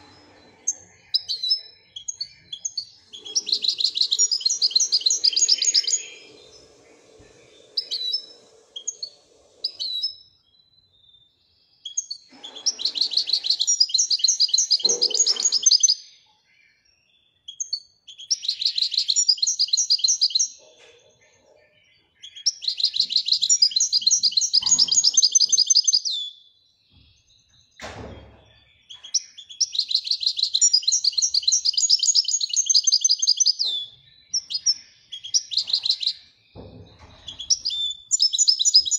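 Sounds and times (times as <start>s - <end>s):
goldfinch trilling song: 0.0s - 10.2s, 11.9s - 16.1s, 22.0s - 27.0s, 28.9s - 36.3s, 37.0s - 38.9s
bird chirps: 0.0s - 38.9s
sharp knock: 36.6s - 37.2s.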